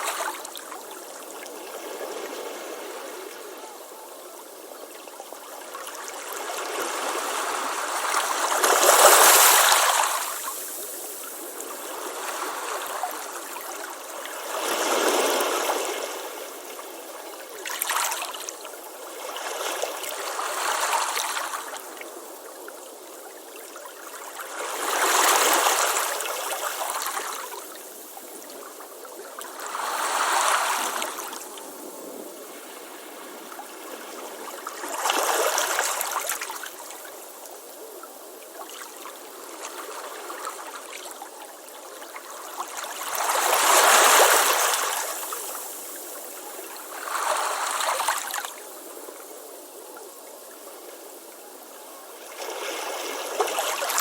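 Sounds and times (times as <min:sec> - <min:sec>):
ocean waves washing onto beach: 0:00.0 - 0:23.1, 0:39.0 - 0:49.0.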